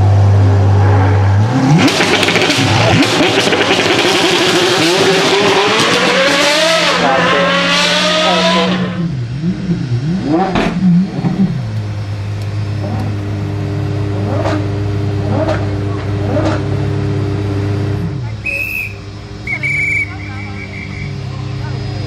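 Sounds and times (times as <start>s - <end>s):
car engine accelerating: 0.0s - 22.0s
car engine idling: 9.0s - 22.0s.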